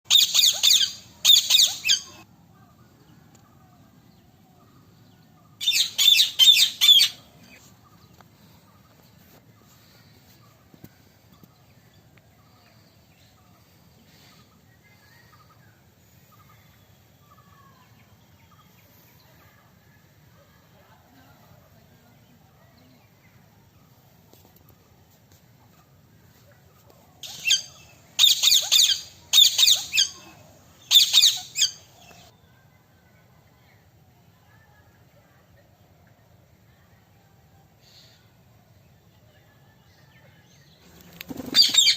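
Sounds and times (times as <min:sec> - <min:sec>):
faint background noise: 0:00.1 - 0:41.9.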